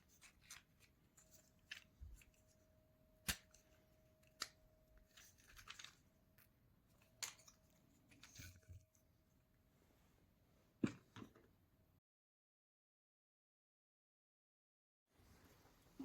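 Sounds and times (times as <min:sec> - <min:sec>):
small wooden parts clicking: 0:04.2 - 0:06.1.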